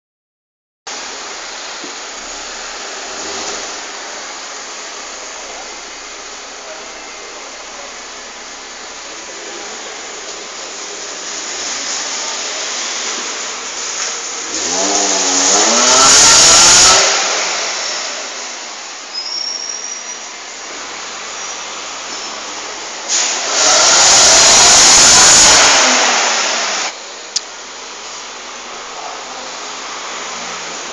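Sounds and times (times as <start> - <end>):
car engine idling and revving: 13.6 - 17.5.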